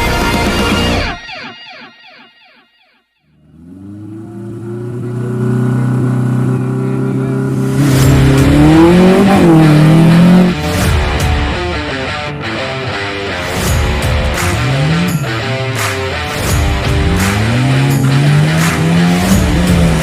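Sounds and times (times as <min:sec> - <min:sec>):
off-road vehicle engine revving: 0:03.3 - 0:11.2, 0:14.0 - 0:15.2, 0:15.8 - 0:20.0.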